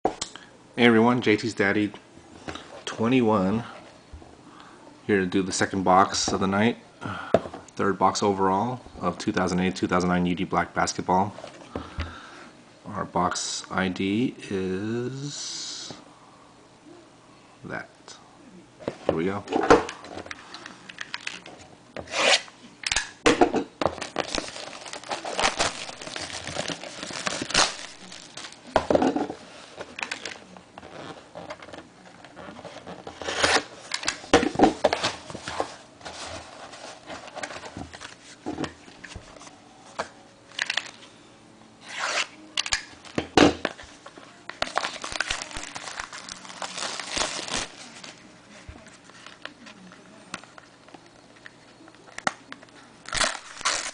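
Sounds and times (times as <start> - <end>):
cardboard packaging handled: 23.9 - 28.8, 32.5 - 38.4, 44.6 - 48.2
plastic shrink-wrap tearing: 24.0 - 28.7, 44.6 - 48.2, 53.0 - 53.9.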